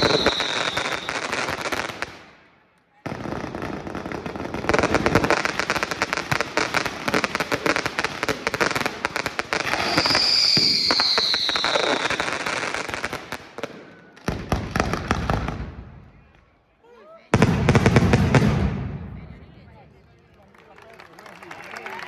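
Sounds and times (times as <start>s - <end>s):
falling firework whistle: 0.0s - 1.6s, 9.6s - 12.5s
fireworks bangs and crackles: 0.0s - 16.3s, 17.3s - 20.3s.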